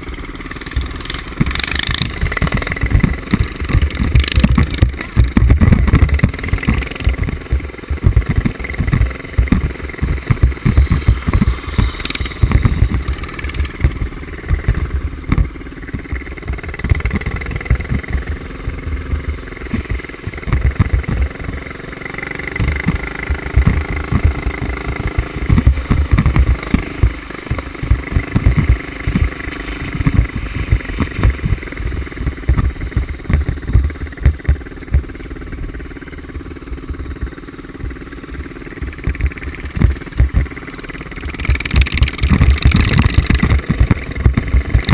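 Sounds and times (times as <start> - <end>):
mini bike engine revving: 0.0 - 44.9.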